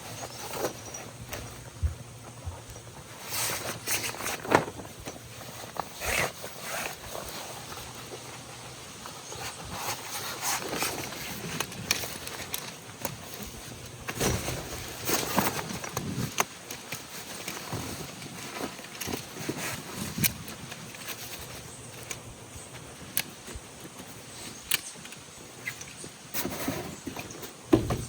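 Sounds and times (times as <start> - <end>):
handling clicks and knocks: 27.1 - 28.0.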